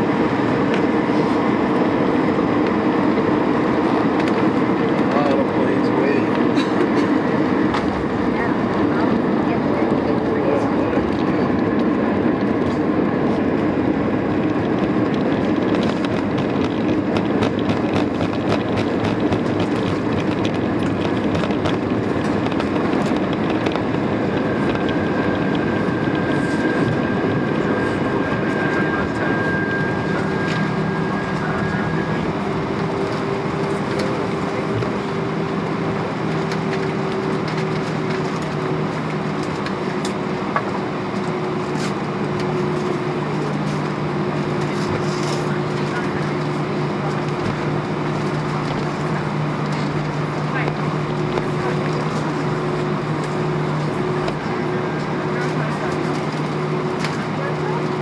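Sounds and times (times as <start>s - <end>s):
aircraft cabin rumble: 0.0s - 58.0s
steady whining tones: 0.0s - 58.0s
wheels knocking over pavement: 14.5s - 27.0s.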